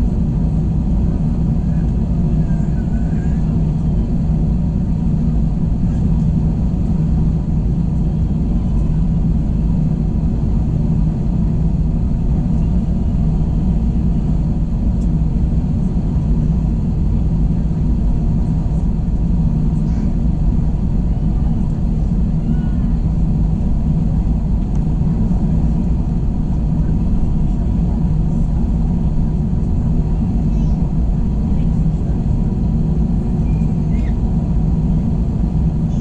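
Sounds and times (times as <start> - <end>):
airplane cabin engine drone: 0.0 - 36.0.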